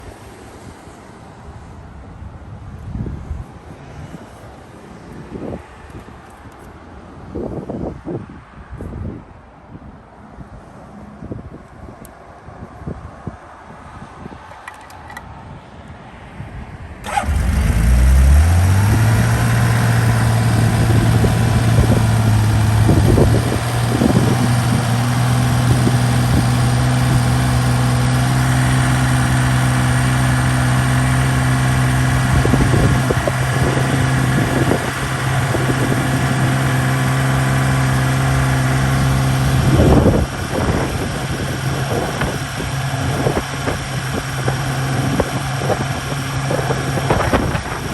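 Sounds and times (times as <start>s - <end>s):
motorcycle engine starting and idling: 14.5s - 15.2s, 17.0s - 47.9s.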